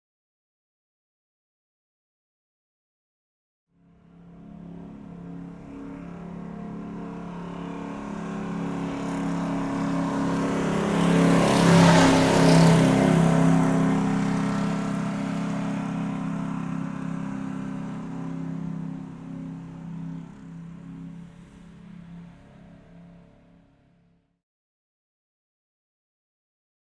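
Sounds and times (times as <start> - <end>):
motor vehicle passing by: 3.8 - 24.2.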